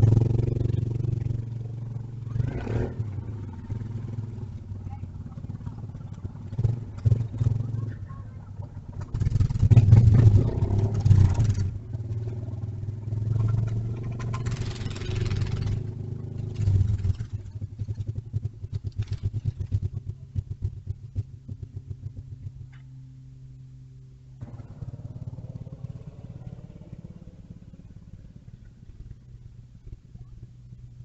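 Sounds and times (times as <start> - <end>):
mini bike engines running: 0.0 - 22.9.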